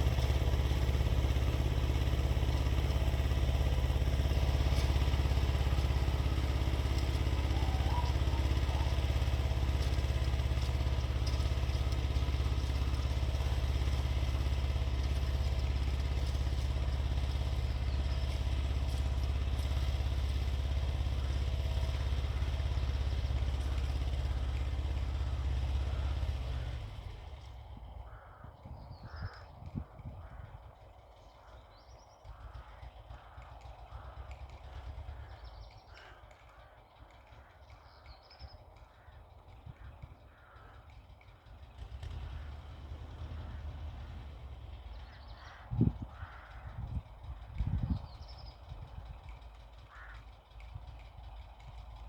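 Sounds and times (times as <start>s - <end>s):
tractor diesel engine running: 0.0s - 52.0s
crow cawing: 4.7s - 13.8s, 19.2s - 26.8s, 28.0s - 29.6s, 30.2s - 38.0s, 38.9s - 41.5s, 45.0s - 46.9s, 49.9s - 50.4s.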